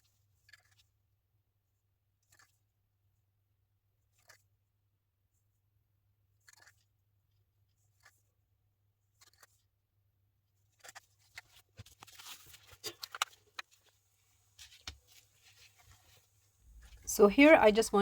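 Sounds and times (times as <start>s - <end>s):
crafting materials clicking and rustling: 6.5s - 6.8s, 10.8s - 14.0s, 14.6s - 16.2s.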